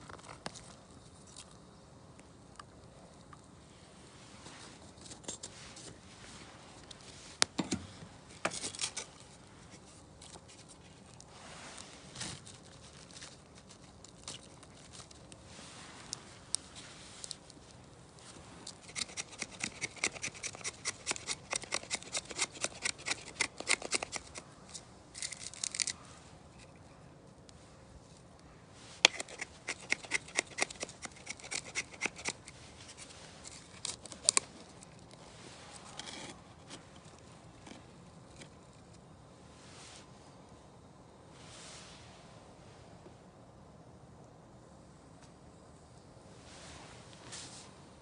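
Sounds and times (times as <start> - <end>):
quick scraping strokes: 18.3 - 24.4, 28.8 - 34.4.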